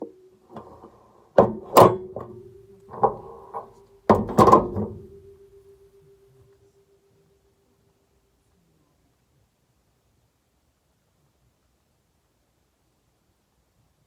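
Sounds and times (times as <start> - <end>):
faint steady tone: 0.0 - 14.0
sharp knocks and thuds: 1.4 - 5.1.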